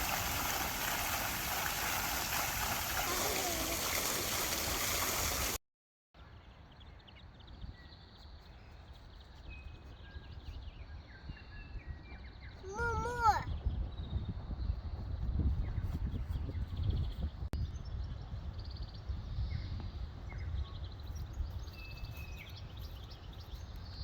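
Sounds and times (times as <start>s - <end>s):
rushing river water: 0.0s - 5.6s.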